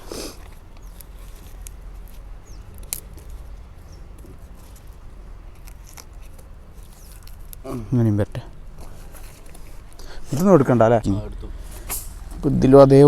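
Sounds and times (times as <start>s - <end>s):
hands handling objects: 0.0s - 7.7s, 8.5s - 10.5s
steady low hum: 0.0s - 13.0s.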